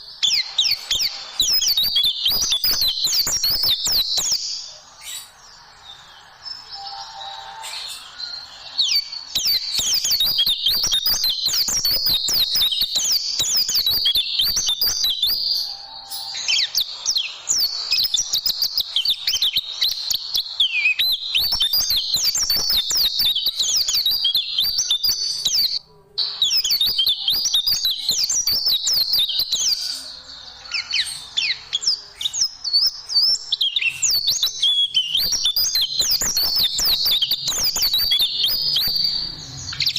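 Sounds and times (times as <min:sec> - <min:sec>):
bird singing high chirps and trills: 0:00.0 - 0:39.9.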